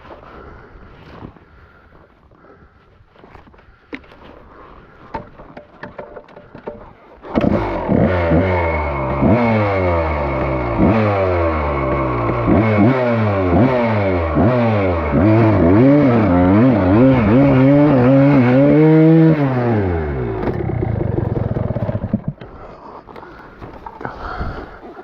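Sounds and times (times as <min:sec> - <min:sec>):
dirt bike engine revving: 0:07.2 - 0:22.4.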